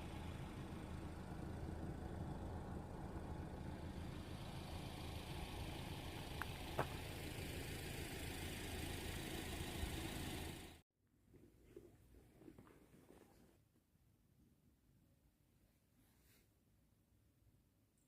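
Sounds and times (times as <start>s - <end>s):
idling engine hum: 0.0s - 10.8s.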